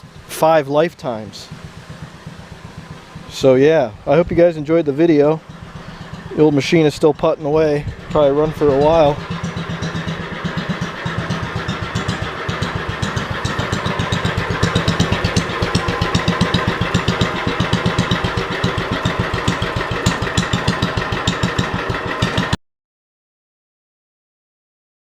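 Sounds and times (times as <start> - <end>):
generator engine exhaust pulses: 0.0 - 22.6.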